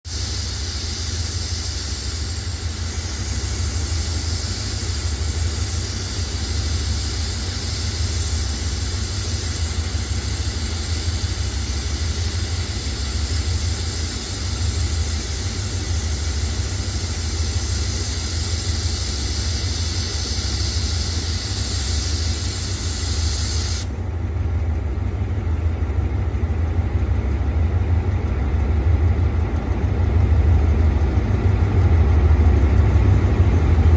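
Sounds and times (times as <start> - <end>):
diesel train engine rumble: 0.0 - 33.9
loud hiss: 0.1 - 23.9.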